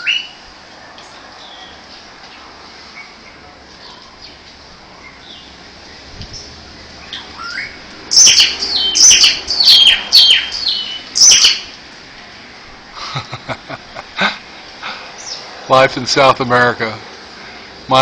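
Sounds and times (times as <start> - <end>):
birds chattering: 0.0 - 0.4, 1.0 - 11.8, 14.0 - 15.6
birds squawking: 0.0 - 0.4, 6.4 - 11.8.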